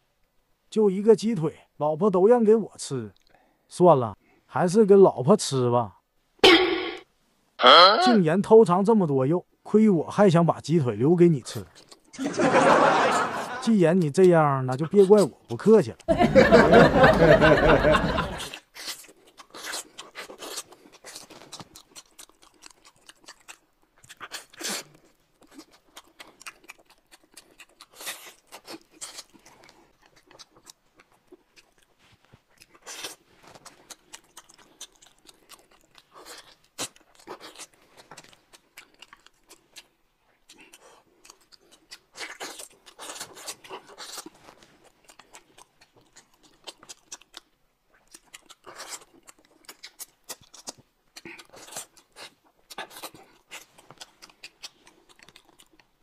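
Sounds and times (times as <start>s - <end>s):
man chewing and crunching: 11.5s - 12.2s, 18.4s - 56.0s.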